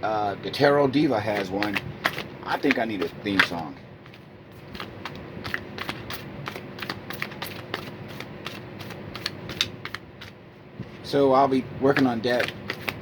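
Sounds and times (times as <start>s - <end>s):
cards being shuffled: 1.3s - 10.4s, 11.9s - 13.0s.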